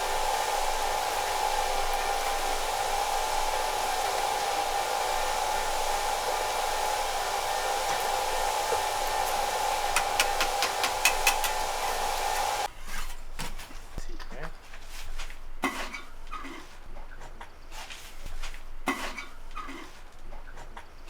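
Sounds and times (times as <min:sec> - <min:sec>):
motor whirring: 0:00.0 - 0:12.7
sharp clicks: 0:09.9 - 0:11.8.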